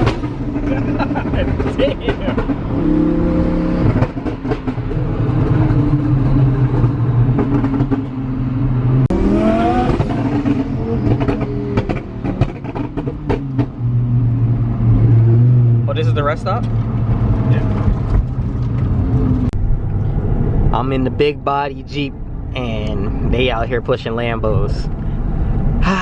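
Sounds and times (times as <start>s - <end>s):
car engine accelerating: 0.0s - 23.4s.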